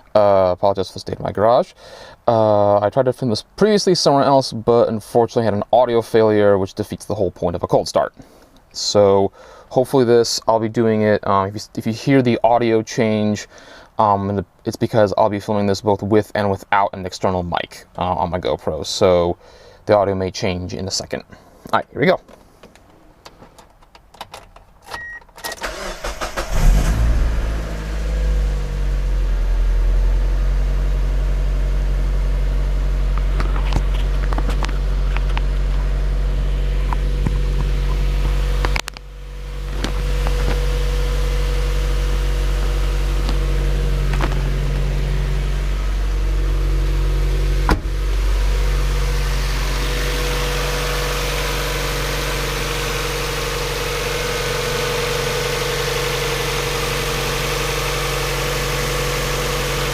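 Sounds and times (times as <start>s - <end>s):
car engine starting and idling: 25.0s - 59.9s.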